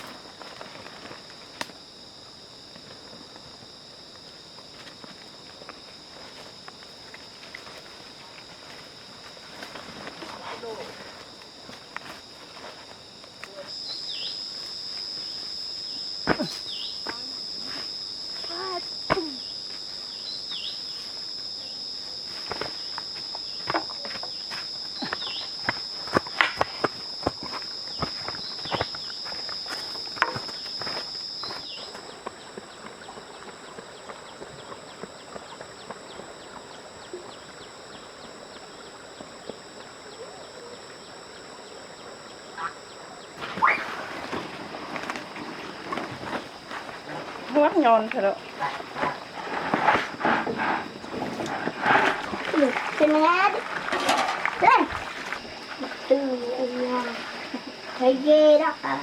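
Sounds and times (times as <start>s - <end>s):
high-pitched insect chorus: 0.0s - 59.0s
footsteps: 22.0s - 34.6s.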